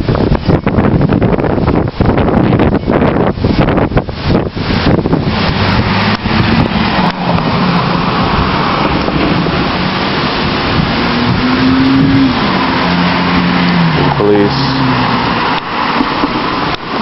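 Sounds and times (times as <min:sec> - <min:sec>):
wind rushing across microphone: 0:00.0 - 0:17.0
police car driving past: 0:05.2 - 0:17.0.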